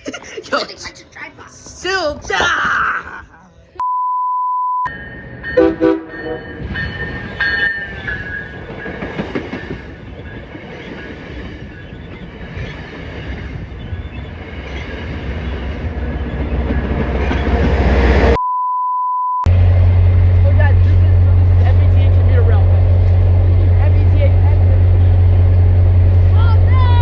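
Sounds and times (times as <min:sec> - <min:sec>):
train wheels clicking on rails: 0:06.6 - 0:17.8.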